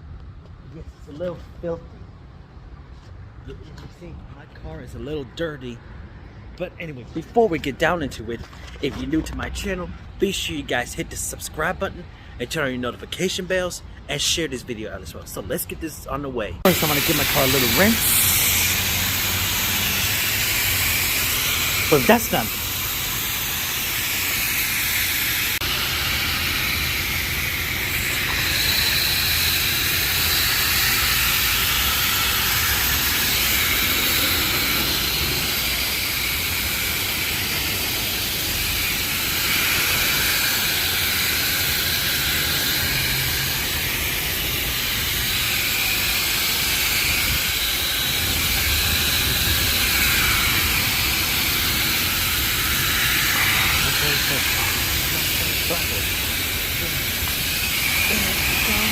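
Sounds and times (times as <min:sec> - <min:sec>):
pressure washer spraying water: 0:16.7 - 0:58.9.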